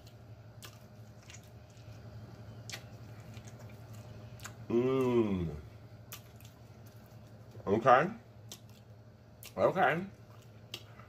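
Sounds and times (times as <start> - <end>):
chewing a burger: 0.0 - 7.6, 8.4 - 11.0
low hum: 0.0 - 11.0
wet mouth clicks and smacks: 2.6 - 4.6, 8.4 - 9.6, 10.4 - 11.0
person humming mmm: 4.6 - 5.7.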